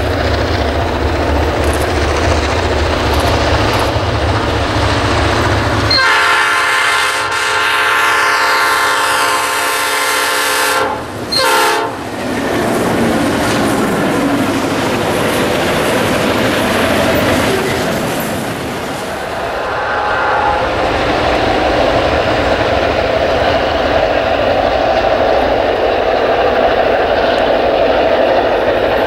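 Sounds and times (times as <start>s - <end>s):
train wheels clattering over rail joints: 0.0s - 6.2s, 11.0s - 19.3s, 20.8s - 29.0s
locomotive horn blasts: 5.9s - 12.0s.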